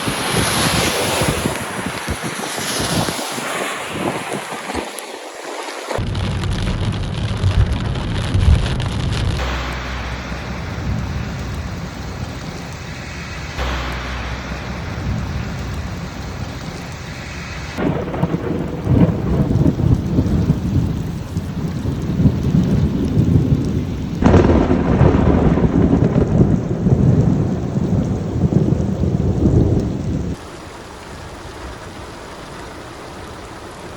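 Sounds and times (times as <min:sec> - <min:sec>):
heavy rain pouring: 0:00.0 - 0:33.9
deep rumble: 0:06.0 - 0:30.4.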